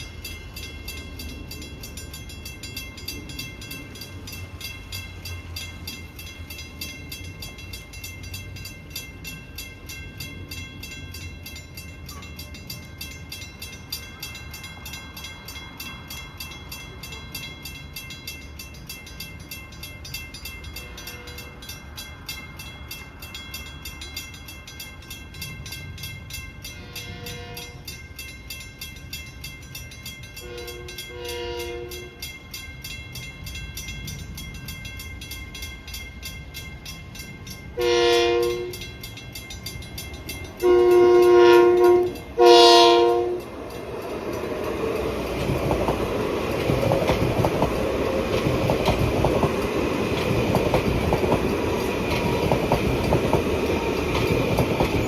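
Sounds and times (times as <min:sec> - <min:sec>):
train passing with rumble: 0:00.0 - 0:55.0
train horn blasts: 0:26.8 - 0:27.9, 0:30.4 - 0:32.2, 0:37.8 - 0:38.8, 0:40.6 - 0:43.4
wheels clacking on rail joints: 0:29.7 - 0:55.0.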